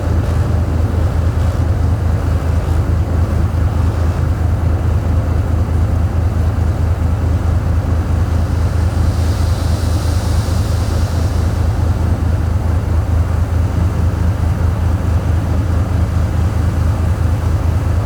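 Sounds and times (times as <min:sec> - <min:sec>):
diesel engine throbbing: 0:00.0 - 0:18.0
faint hiss: 0:07.8 - 0:13.8.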